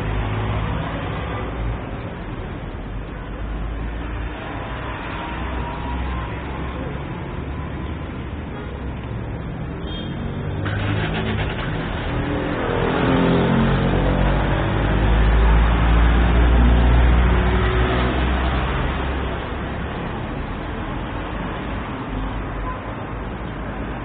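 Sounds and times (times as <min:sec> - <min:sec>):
vehicle engine passing by: 0:10.4 - 0:19.6.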